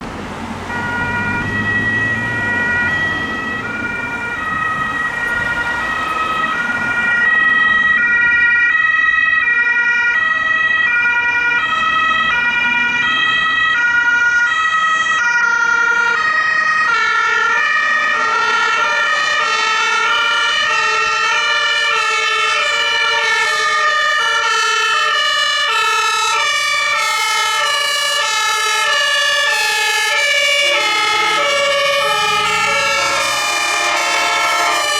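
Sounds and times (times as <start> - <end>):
vehicle engine rumbling: 0.0 - 9.3, 28.4 - 34.9
two-tone emergency sirens: 0.0 - 34.9.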